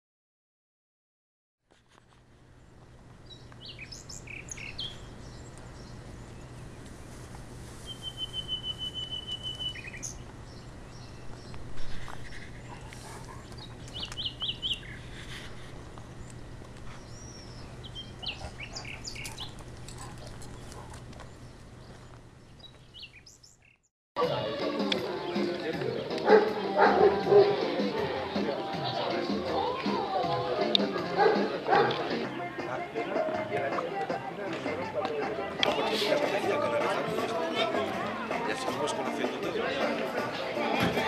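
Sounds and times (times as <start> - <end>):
steady low hum: 2.1 - 23.0
birds chirping: 2.5 - 23.9, 24.6 - 40.8
bird trill: 3.3 - 6.5, 7.8 - 11.3, 17.0 - 20.1.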